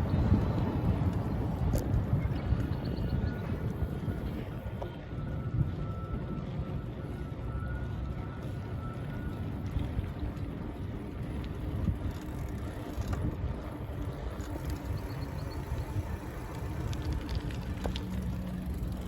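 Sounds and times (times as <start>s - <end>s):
bicycle tyre and wind noise: 0.0s - 19.0s
small clicks and rattles: 11.4s - 13.4s, 14.3s - 19.0s.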